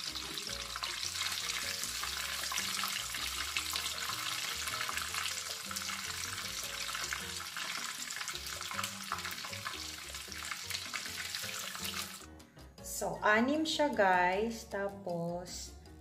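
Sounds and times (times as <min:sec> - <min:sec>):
meatballs sizzling in oil: 0:00.0 - 0:12.3
soft background music: 0:00.0 - 0:16.0.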